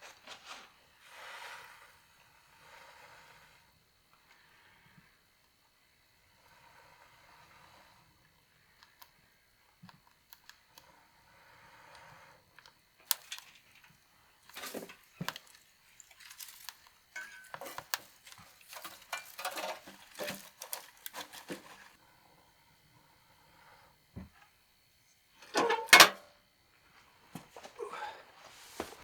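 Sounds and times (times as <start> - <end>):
knocks and rustling from stoking fire: 11.5 - 22.0.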